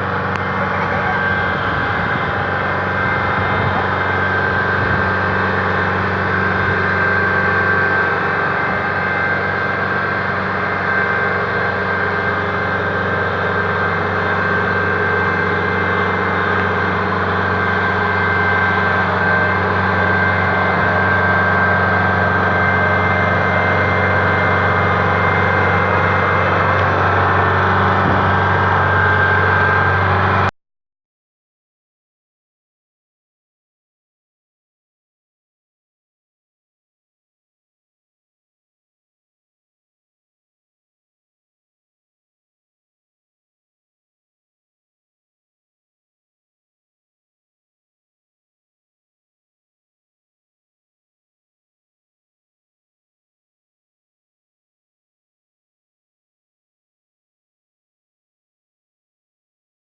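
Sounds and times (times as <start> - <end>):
diesel engine running: 0.0 - 30.5.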